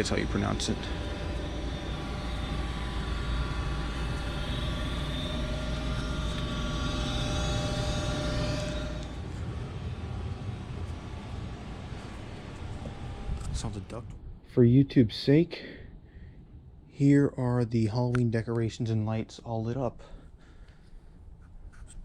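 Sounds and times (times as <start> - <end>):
gas furnace humming: 0.0 - 21.2
faint steady whine: 0.0 - 22.0.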